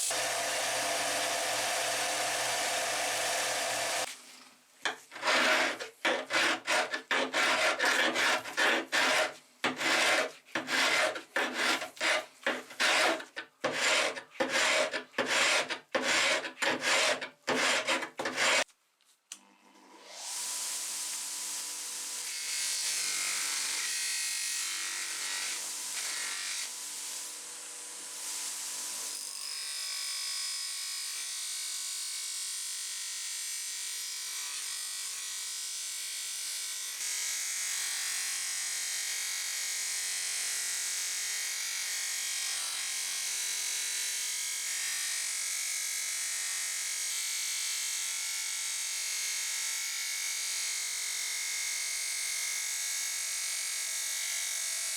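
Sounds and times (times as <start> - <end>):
small electric power tool running: 0.0 - 4.1
abrasive rubbing on metal: 5.1 - 18.6.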